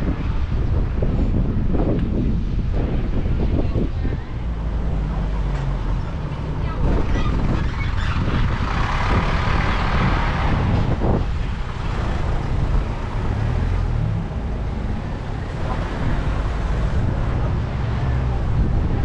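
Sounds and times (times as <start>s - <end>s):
street traffic rumble: 0.0s - 19.0s
vehicle passing close by: 4.0s - 19.0s.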